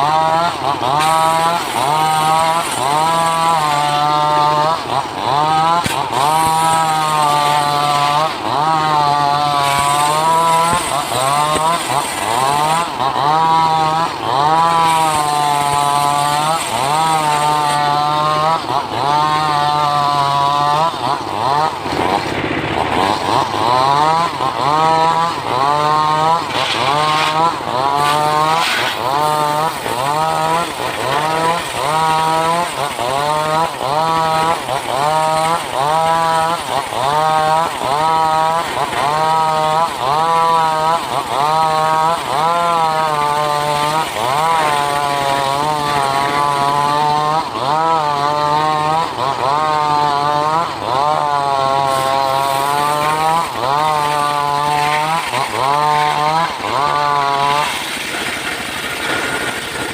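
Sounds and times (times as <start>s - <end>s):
chainsaw cutting through wood: 0.0s - 59.9s.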